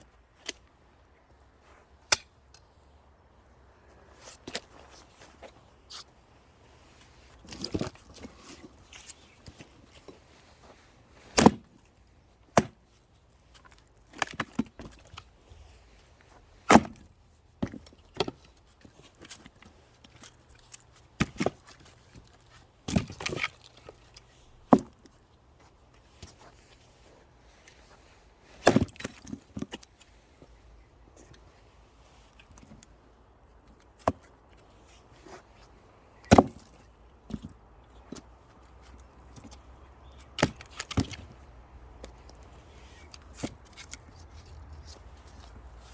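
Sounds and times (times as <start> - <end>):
axe chopping firewood: 2.1 - 2.4, 11.3 - 11.8, 12.5 - 12.8, 16.7 - 18.4, 21.2 - 21.6, 24.7 - 25.0, 28.6 - 29.8, 36.2 - 36.8, 40.3 - 41.3.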